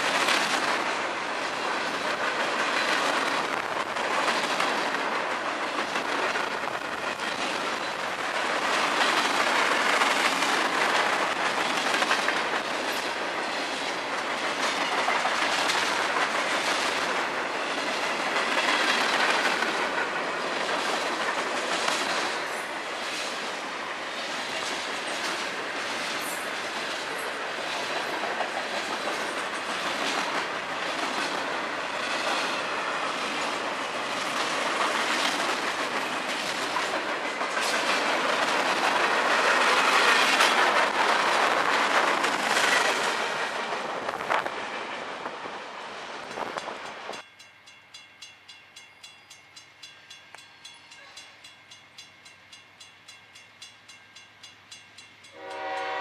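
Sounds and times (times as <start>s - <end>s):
wheels clicking over rail joints: 0.0s - 23.5s, 24.3s - 45.5s
freight train wheels rolling: 0.0s - 47.5s.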